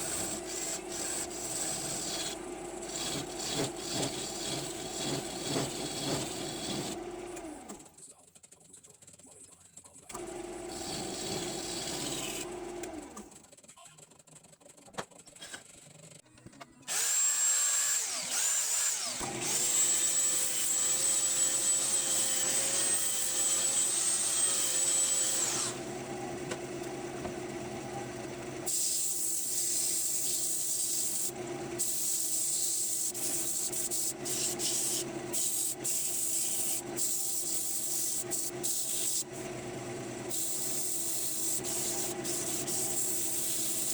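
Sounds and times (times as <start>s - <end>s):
sanding on spinning wood: 0.0s - 6.9s, 28.7s - 39.3s, 40.3s - 43.9s
wood lathe motor: 0.0s - 7.8s, 10.2s - 13.4s, 16.9s - 43.9s.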